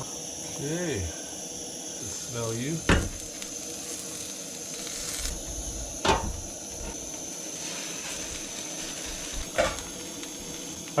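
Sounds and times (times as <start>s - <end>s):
quesadilla sizzling: 0.0s - 11.0s
sharp knock: 2.9s - 3.2s.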